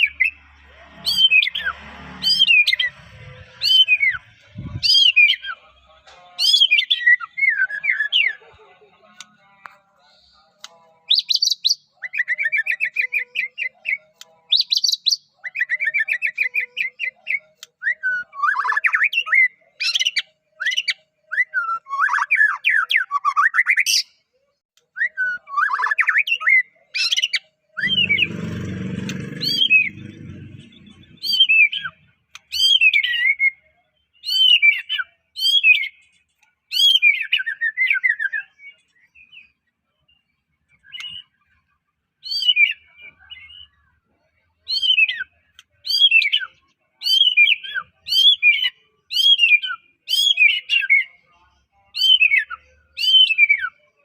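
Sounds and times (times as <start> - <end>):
bird singing whistled song: 6.4 - 8.4, 11.1 - 24.2, 24.9 - 27.4, 31.2 - 36.0, 36.7 - 41.4, 42.2 - 43.8, 44.7 - 51.2, 51.9 - 53.8.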